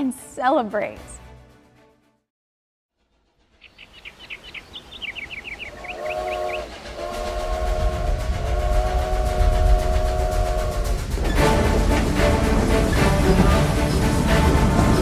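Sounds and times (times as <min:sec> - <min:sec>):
train chuffing: 0:03.2 - 0:15.0
low rumble: 0:05.6 - 0:15.0
train whistle blasts: 0:05.7 - 0:15.0.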